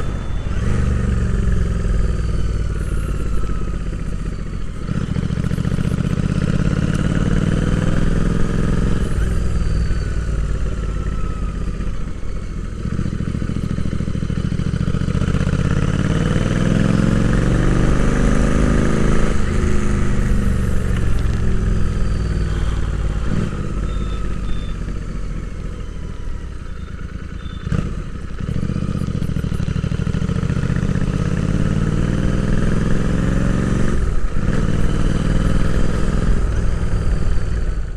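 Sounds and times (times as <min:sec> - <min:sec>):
motorcycle engine accelerating: 0:00.0 - 0:37.9.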